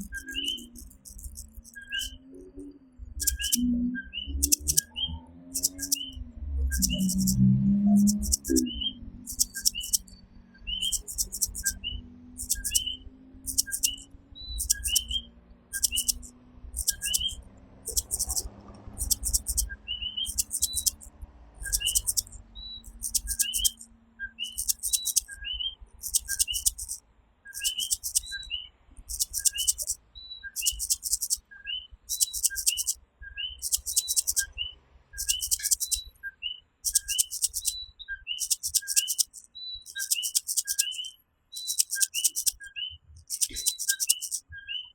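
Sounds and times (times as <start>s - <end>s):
tree frogs calling: 0.0s - 2.2s, 3.2s - 3.6s, 4.3s - 6.2s, 6.8s - 7.4s, 9.2s - 25.4s, 26.0s - 28.4s, 29.0s - 31.4s, 32.1s - 34.6s, 35.2s - 36.1s, 36.8s - 44.4s
high pulsed chirring: 3.2s - 3.6s, 5.6s - 6.0s, 6.7s - 8.6s, 9.2s - 10.0s, 10.8s - 11.8s, 12.4s - 12.9s, 13.5s - 15.1s, 15.8s - 19.7s, 20.3s - 23.8s, 24.5s - 25.4s, 26.0s - 28.3s, 29.1s - 30.0s, 30.6s - 31.4s, 32.1s - 33.0s, 33.6s - 34.4s, 35.2s - 36.0s, 36.9s - 37.7s, 38.4s - 42.6s.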